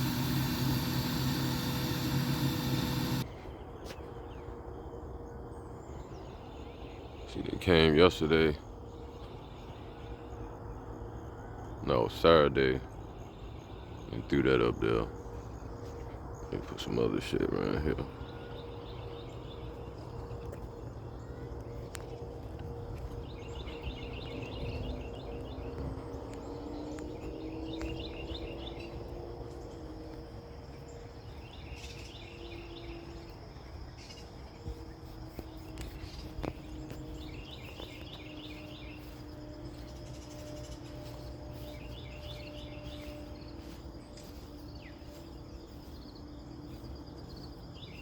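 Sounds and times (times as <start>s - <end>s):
rapid chirps: 0.0s - 3.3s
faint hum: 0.0s - 48.0s.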